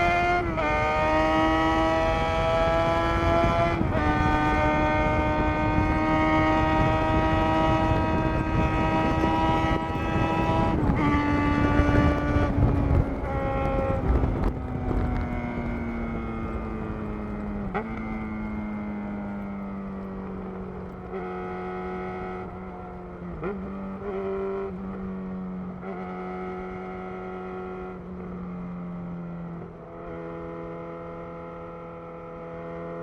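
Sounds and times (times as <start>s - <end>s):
wind noise: 0.0s - 28.4s
motorcycle engine running: 0.0s - 30.1s
road rumble: 0.0s - 33.0s.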